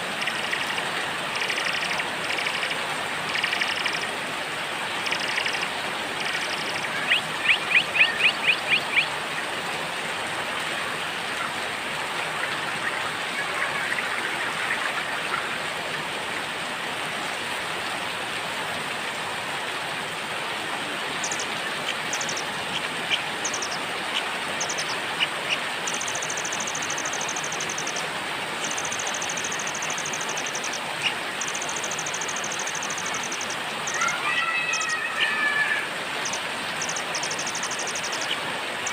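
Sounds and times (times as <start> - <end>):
songbirds calling: 0.0 - 4.2, 4.9 - 9.5, 21.0 - 35.4, 36.1 - 38.9
rain hiss: 0.0 - 38.9.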